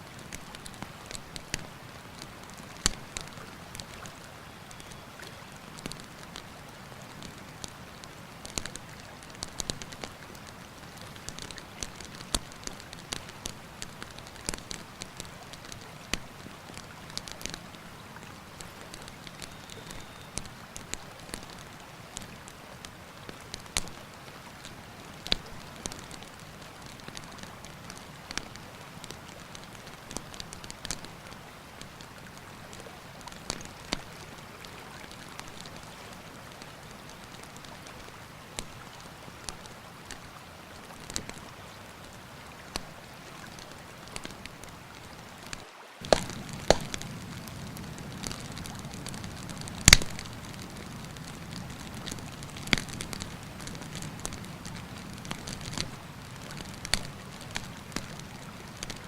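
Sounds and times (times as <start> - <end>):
campfire crackling and popping: 0.1 - 35.9, 41.0 - 42.1, 42.7 - 59.0
river rushing: 34.1 - 59.0.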